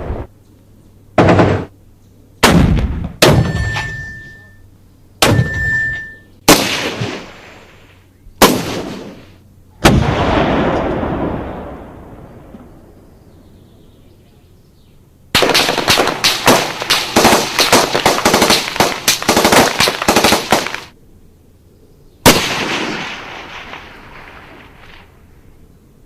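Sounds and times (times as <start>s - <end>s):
automatic gunfire burst: 15.4s - 20.9s.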